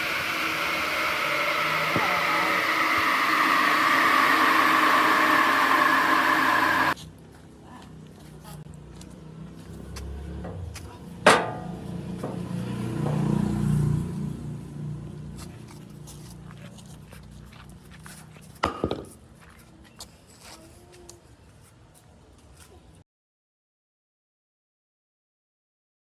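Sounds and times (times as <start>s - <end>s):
electric motor running: 0.0s - 7.0s
workshop handling noise: 10.4s - 13.4s.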